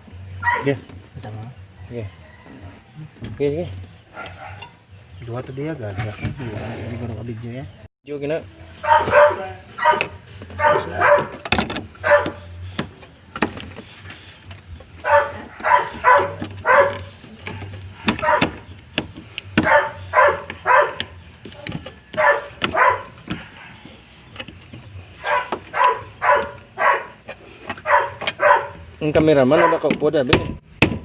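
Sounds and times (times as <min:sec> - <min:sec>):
dog barking: 0:00.4 - 0:00.8, 0:04.1 - 0:04.7, 0:08.8 - 0:11.4, 0:12.0 - 0:12.5, 0:15.0 - 0:18.7, 0:19.6 - 0:23.8, 0:25.2 - 0:27.2, 0:27.8 - 0:28.9, 0:29.5 - 0:29.9.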